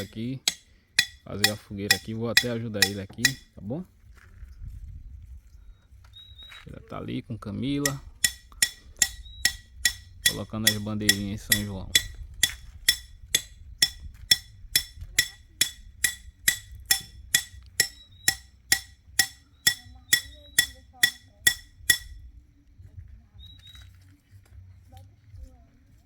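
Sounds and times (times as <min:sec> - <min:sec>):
ringing metallic strikes: 0:00.0 - 0:03.5, 0:07.9 - 0:22.2.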